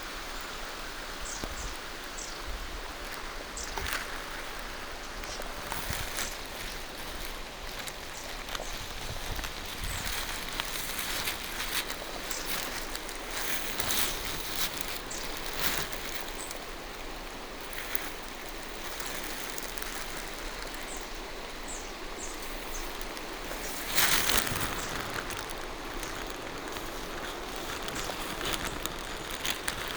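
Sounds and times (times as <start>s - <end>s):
rain falling through trees: 0.0s - 29.9s
rustling through wet undergrowth: 0.0s - 29.9s.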